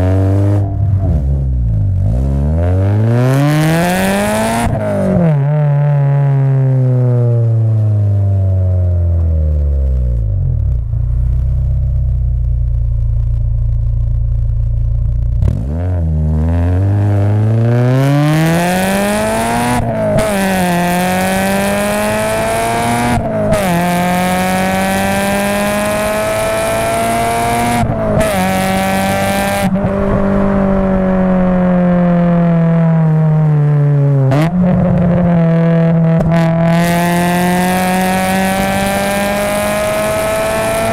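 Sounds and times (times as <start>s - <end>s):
car engine revving through gears: 0.0s - 6.7s, 15.4s - 40.9s.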